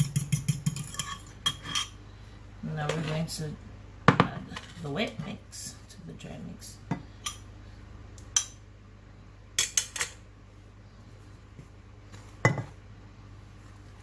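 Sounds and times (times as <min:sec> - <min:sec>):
bowls and utensils clinking: 0:00.0 - 0:02.0.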